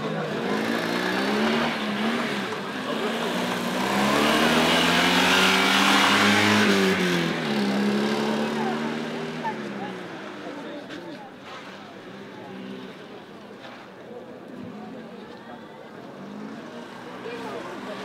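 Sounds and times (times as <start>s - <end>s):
car engine accelerating past: 0.3s - 9.5s.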